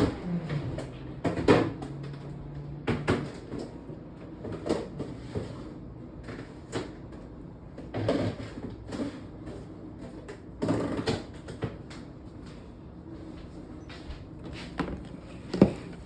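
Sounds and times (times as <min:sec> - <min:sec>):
kitchen knocks and bumps: 0:14.7 - 0:16.0.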